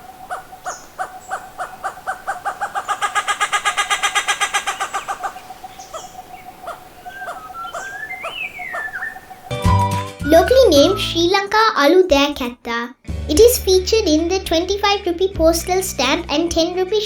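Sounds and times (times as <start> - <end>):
hornbill calling: 0.0 - 9.6.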